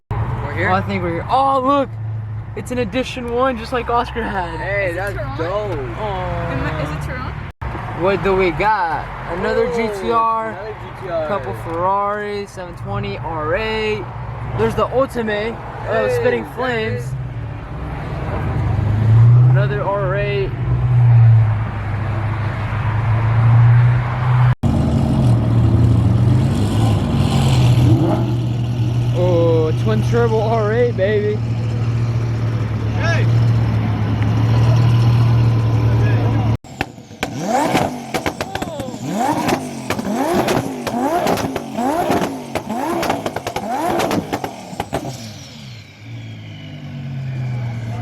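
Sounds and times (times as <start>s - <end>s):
car engine droning: 0.1s - 48.0s
exhaust pops and cracks: 36.7s - 45.2s.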